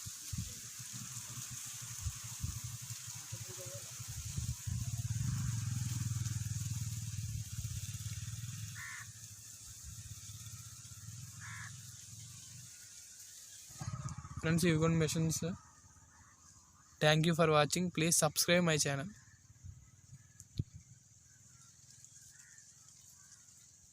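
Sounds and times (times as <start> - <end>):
low engine rumble: 2.1 - 12.7, 13.7 - 21.8.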